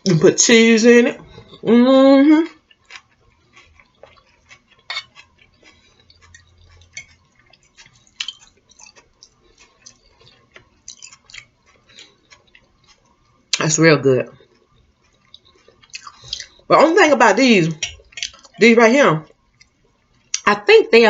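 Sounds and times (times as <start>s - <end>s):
person chewing: 1.2s - 1.7s, 2.3s - 13.6s, 14.3s - 16.7s, 17.6s - 18.6s, 19.3s - 20.4s
wet mouth smacks and clicks: 7.9s - 13.1s, 15.1s - 16.6s.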